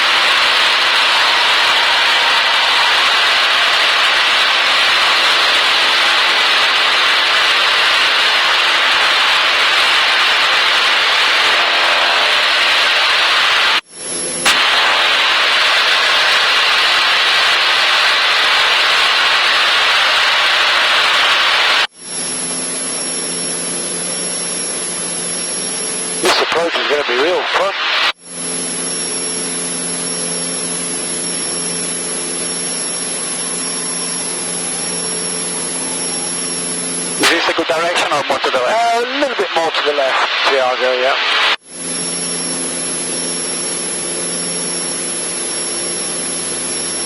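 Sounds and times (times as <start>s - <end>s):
airplane engine drone in cabin: 0.0s - 26.5s, 27.9s - 37.4s, 41.4s - 47.0s
thin high whine: 0.0s - 47.0s
aircraft engine and propeller: 41.7s - 47.0s.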